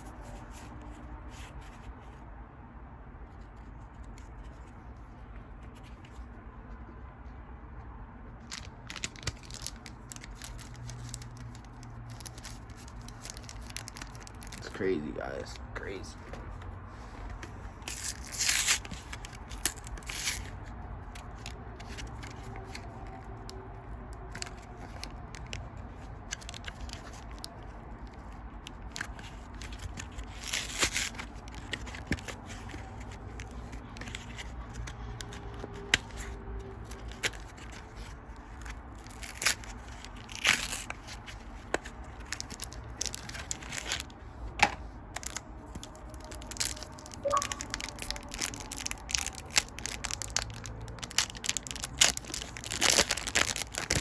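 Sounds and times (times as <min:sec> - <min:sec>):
cards rustling: 0:08.4 - 0:23.5, 0:24.2 - 0:54.0
foil wrappers ripping: 0:08.5 - 0:14.8, 0:17.8 - 0:20.4, 0:36.9 - 0:44.1, 0:45.2 - 0:54.0.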